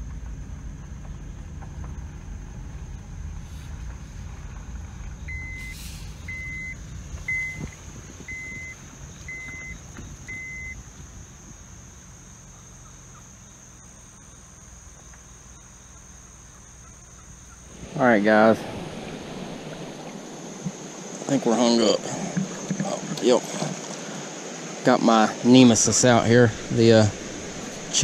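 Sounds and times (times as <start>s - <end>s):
low rumble: 0.0s - 11.8s, 15.5s - 21.4s, 25.2s - 28.0s
vehicle warning chime beeping: 5.3s - 10.8s.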